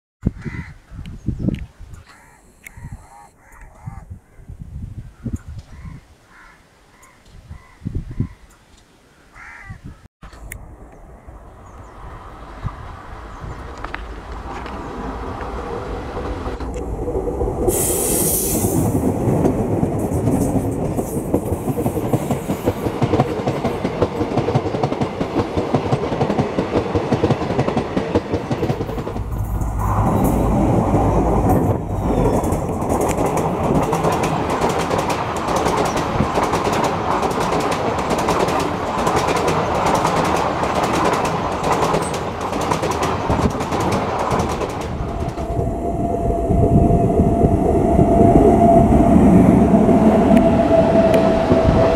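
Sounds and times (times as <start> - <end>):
diesel locomotive passing: 10.5 - 51.9
train wheels clattering over rail joints: 17.7 - 45.6.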